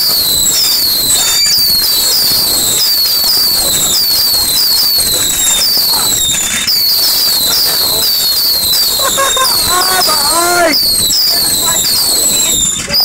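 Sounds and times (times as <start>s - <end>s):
firework crackling and bangs: 0.0s - 13.0s
shrill falling firework whistles: 0.0s - 13.0s.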